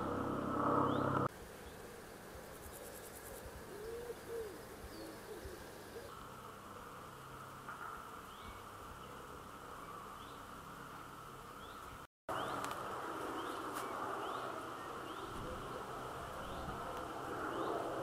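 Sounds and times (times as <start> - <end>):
small bird calling: 2.4 - 6.2.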